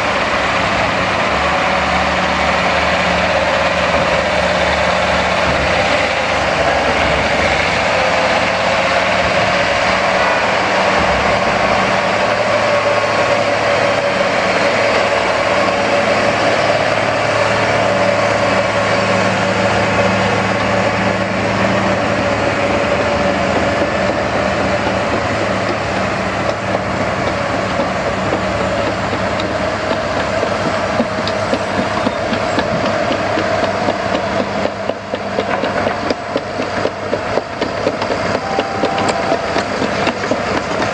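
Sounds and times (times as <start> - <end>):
heavy diesel engine running: 0.0 - 40.9
steady whine: 37.6 - 40.8.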